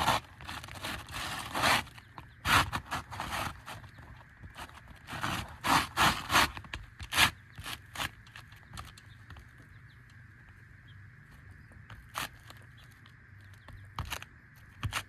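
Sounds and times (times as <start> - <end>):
roof shingle scraping: 0.0 - 8.9.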